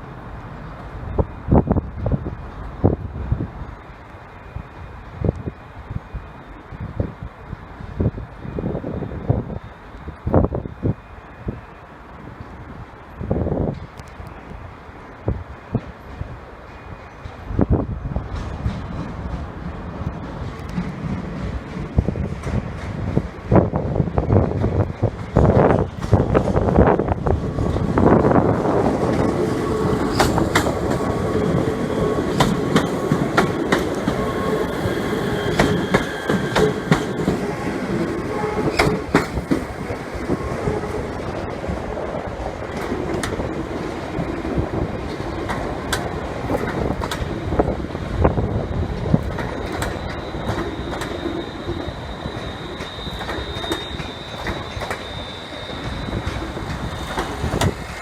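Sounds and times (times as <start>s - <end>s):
train wheels clicking over rails: 15.7s - 58.0s
high-pitched wheel squeals: 29.2s - 39.3s, 48.6s - 58.0s.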